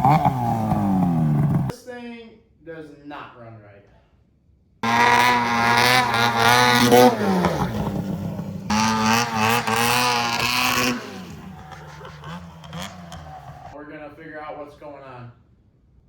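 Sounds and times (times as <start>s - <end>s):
snowmobile engine revving unevenly: 0.0s - 1.7s, 4.8s - 13.8s.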